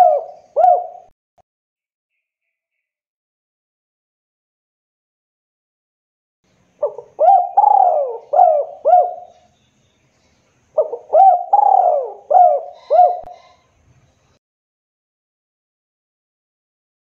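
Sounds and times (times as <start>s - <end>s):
dove cooing: 0.0s - 1.1s, 6.8s - 9.5s, 10.8s - 13.6s.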